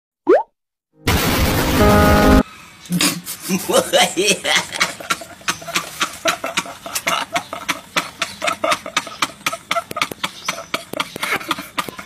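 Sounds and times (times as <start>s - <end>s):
men laughing hard: 3.5s - 12.0s.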